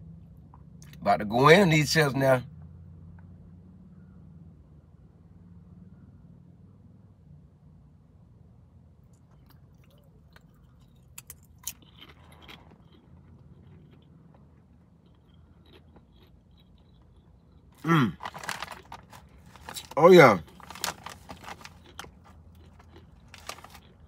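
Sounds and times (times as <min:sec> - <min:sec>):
tortilla chip crunching: 0:09.0 - 0:24.0
person exclaiming: 0:17.8 - 0:18.2.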